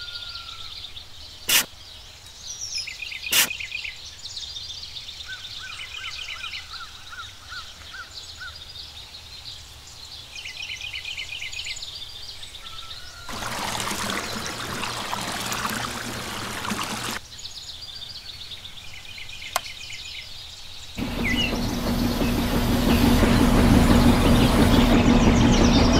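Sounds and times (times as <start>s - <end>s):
sharp click: 3.3s - 3.5s, 19.5s - 19.7s
birds chirping: 13.1s - 25.9s
water pouring and splashing: 13.3s - 17.2s.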